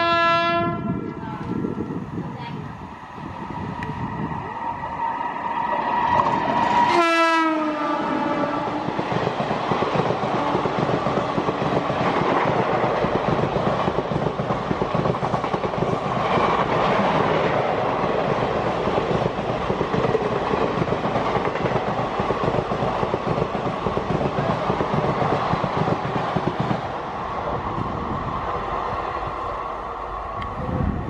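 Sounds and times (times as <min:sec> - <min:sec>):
locomotive horn: 0:00.0 - 0:01.0, 0:06.8 - 0:08.8
train coaches rushing past: 0:01.0 - 0:31.0.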